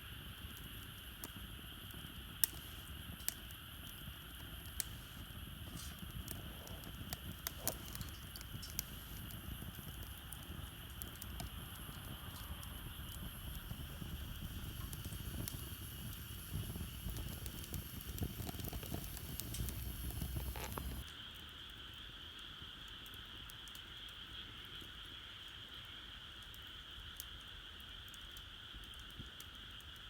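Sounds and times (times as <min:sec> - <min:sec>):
steady high hiss: 0:00.0 - 0:21.1
wood fire crackling: 0:00.0 - 0:21.1.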